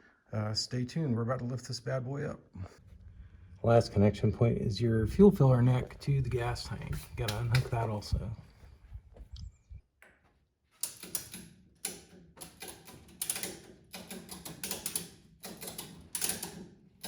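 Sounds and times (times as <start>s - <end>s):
ratchet clicking: 10.8s - 16.7s.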